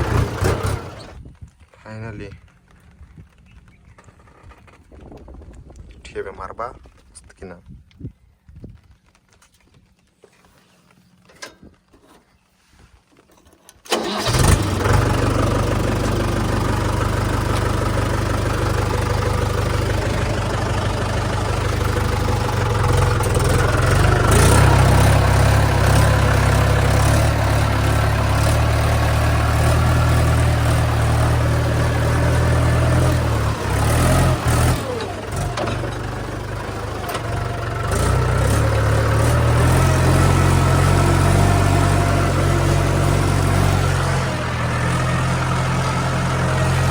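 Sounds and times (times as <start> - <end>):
tractor diesel engine running: 0.0 - 1.3, 13.4 - 46.9.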